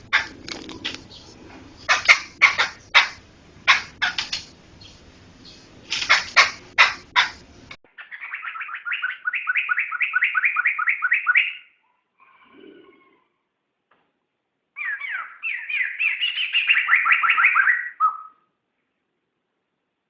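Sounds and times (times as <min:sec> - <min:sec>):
bird chattering song: 0:00.0 - 0:11.7, 0:14.8 - 0:18.4
soft bird call: 0:14.8 - 0:18.5.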